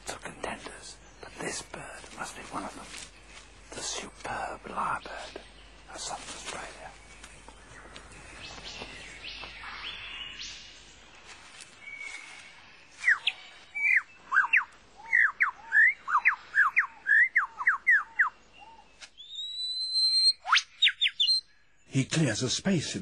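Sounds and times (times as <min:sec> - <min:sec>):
faint forest birdsong: 0:00.0 - 0:23.0
lyrebird whistling song: 0:11.8 - 0:21.6.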